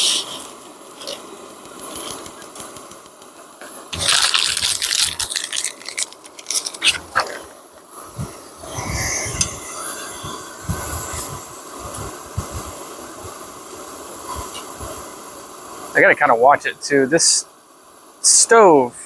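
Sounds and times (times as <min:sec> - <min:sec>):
camp stove burner hissing: 0:00.0 - 0:19.0
water pouring into a pot: 0:04.0 - 0:06.8.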